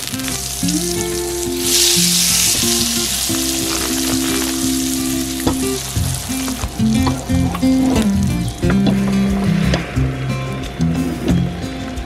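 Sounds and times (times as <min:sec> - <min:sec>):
bread sizzling in butter: 0:00.0 - 0:07.4.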